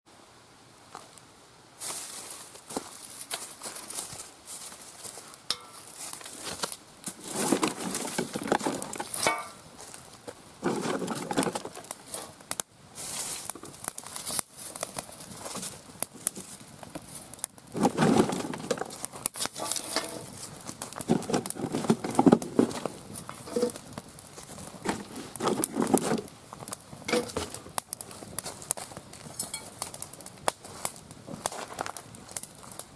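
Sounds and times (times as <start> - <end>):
rustling of firewood: 1.8 - 32.9
twigs snapping: 13.4 - 32.9.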